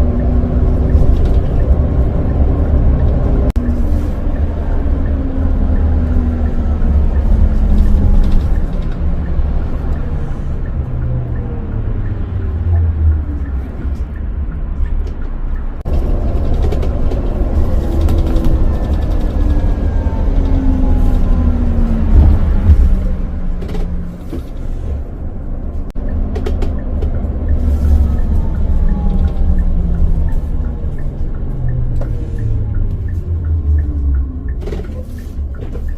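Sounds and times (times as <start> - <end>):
bus engine rumbling: 0.0 - 35.9
light ticking: 25.9 - 35.9.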